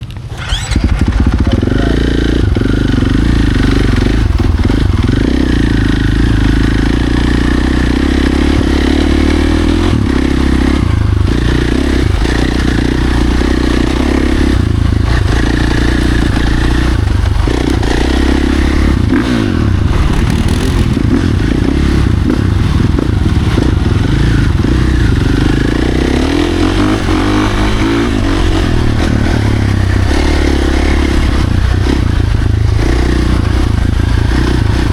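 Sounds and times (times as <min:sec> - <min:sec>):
dirt bike engine revving: 0:00.3 - 0:34.9.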